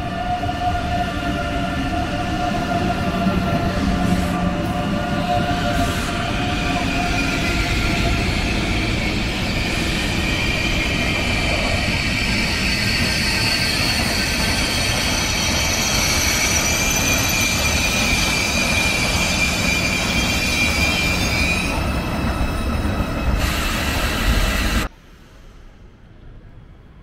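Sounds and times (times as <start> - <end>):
high-pitched wheel squeal: 3.7 - 24.9.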